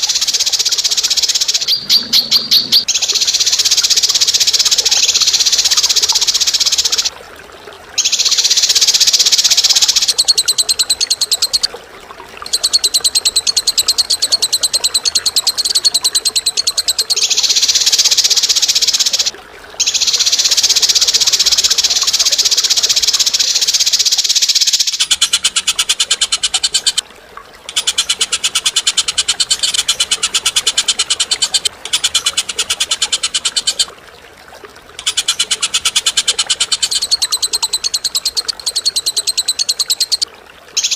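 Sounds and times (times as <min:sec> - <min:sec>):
bird singing rattling trills: 0:00.0 - 0:07.1, 0:12.5 - 0:27.0, 0:35.0 - 0:40.2.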